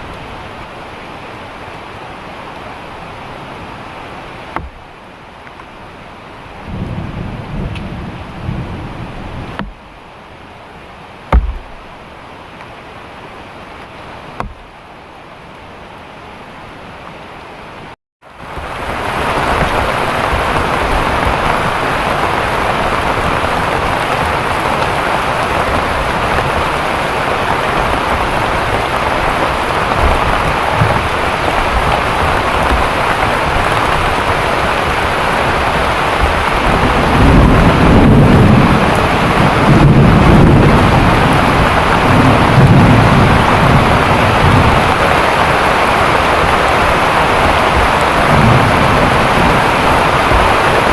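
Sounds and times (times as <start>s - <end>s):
heavy rain pouring: 0.0s - 50.9s
thunder rumbling: 6.6s - 9.9s, 18.5s - 50.9s.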